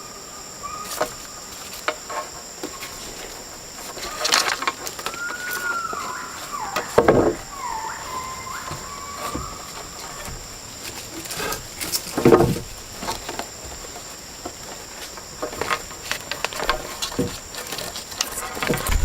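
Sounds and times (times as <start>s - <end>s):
insects droning: 0.0s - 19.0s
knocks and rustles: 0.8s - 19.0s
thud: 18.7s - 19.0s.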